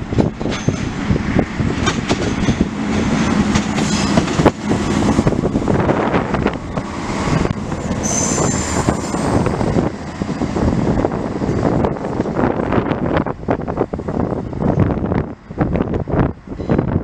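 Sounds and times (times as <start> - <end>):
train wheels clattering over joints: 0.1 - 5.2
high-pitched wheel squeal: 8.0 - 9.5.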